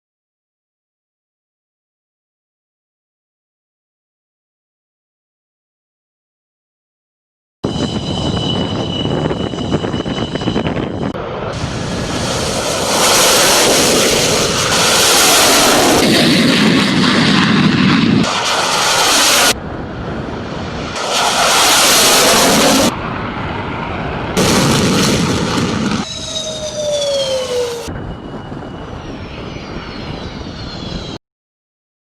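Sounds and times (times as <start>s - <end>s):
jet engine whine: 7.6s - 31.2s
loud rushing jet noise: 7.6s - 31.2s.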